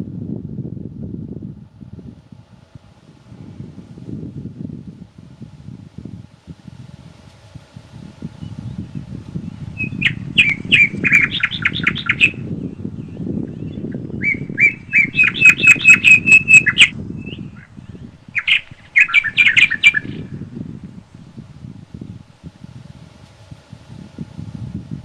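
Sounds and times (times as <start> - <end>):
wind through forest: 0.0 - 25.0
bird calling quick notes: 9.8 - 20.4.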